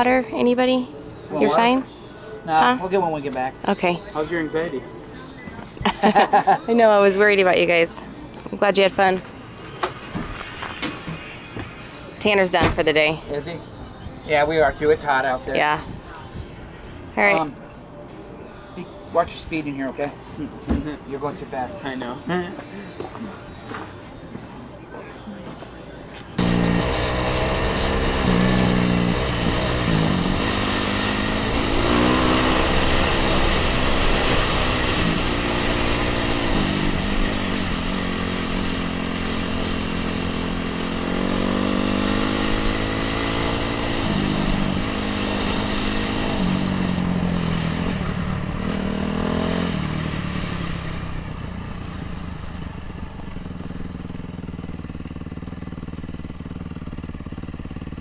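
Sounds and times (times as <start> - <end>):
off-road vehicle engine accelerating: 26.4 - 58.0.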